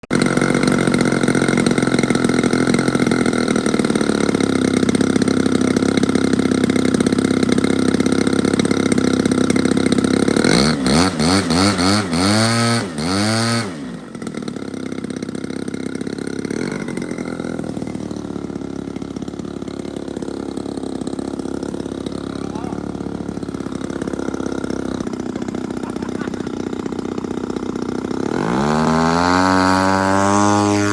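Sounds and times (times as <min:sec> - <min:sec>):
model plane engine revving: 0:00.0 - 0:30.9.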